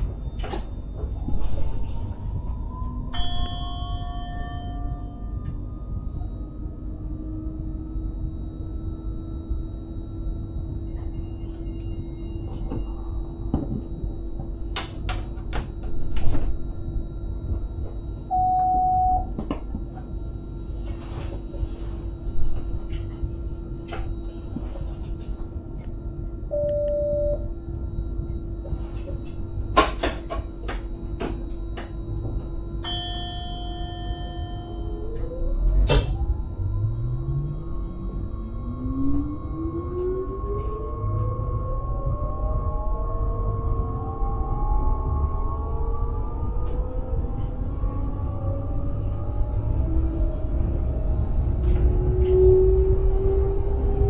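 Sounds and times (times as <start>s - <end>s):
train running hum and rumble: 0.0s - 54.0s
short electronic beeps: 26.5s - 27.5s
train motor whine rising: 30.6s - 54.0s.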